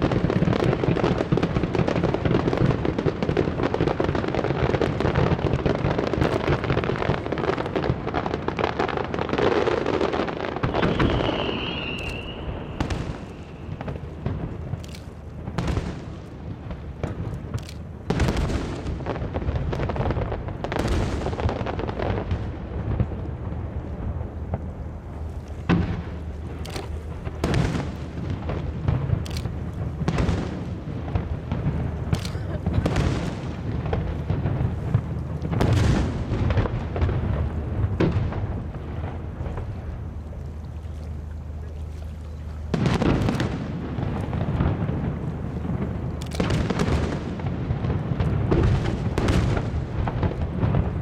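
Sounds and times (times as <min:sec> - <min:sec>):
rumbling of explosions: 0:00.0 - 0:40.6, 0:42.6 - 0:51.0
firework shells bursting: 0:10.6 - 0:16.2.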